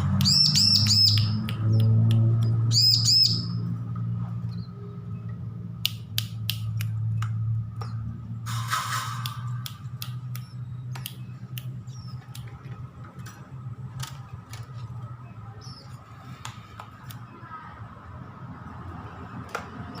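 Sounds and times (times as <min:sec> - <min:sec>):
young bird chirping: 0:00.2 - 0:03.7, 0:10.4 - 0:12.3, 0:15.6 - 0:16.4
sharp clicks: 0:05.8 - 0:08.0, 0:08.9 - 0:14.8.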